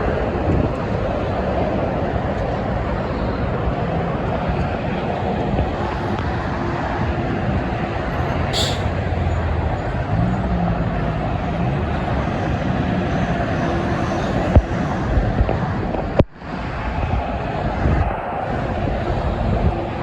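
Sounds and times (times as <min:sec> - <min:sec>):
heavy trucks passing: 0:00.1 - 0:20.0
short sharp hiss: 0:08.6 - 0:08.9.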